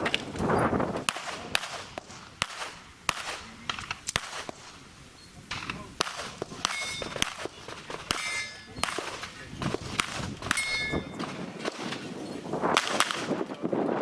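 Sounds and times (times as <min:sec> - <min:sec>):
steel targets clanging: 0:06.6 - 0:09.8, 0:10.4 - 0:11.4.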